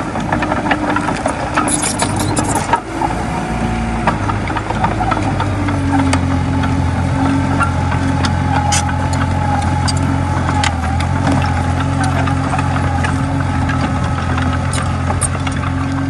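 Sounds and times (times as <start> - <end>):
bulldozer diesel engine running: 0.0 - 16.0
metallic clicks and clanks: 0.3 - 2.8, 11.4 - 16.0.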